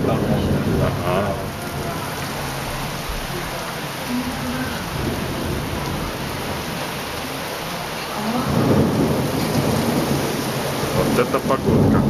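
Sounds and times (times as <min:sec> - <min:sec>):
thunder rolling: 0:00.0 - 0:03.5, 0:04.6 - 0:06.9, 0:08.2 - 0:12.0
heavy rain pouring: 0:00.0 - 0:12.0.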